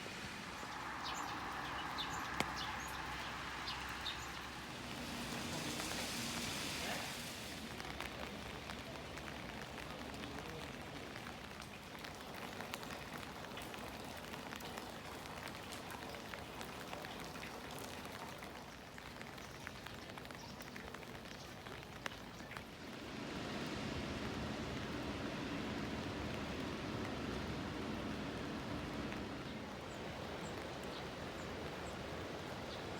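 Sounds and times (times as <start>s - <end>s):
steady rain falling: 0.0s - 32.9s
low rumble: 23.0s - 29.8s.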